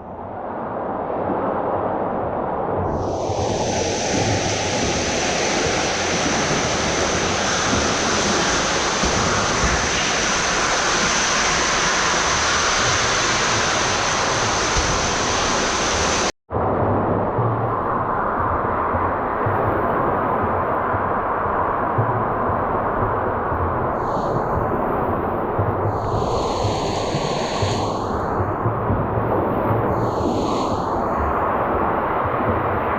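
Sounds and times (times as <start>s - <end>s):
rushing hissing pool water: 2.9s - 16.3s, 24.0s - 32.9s.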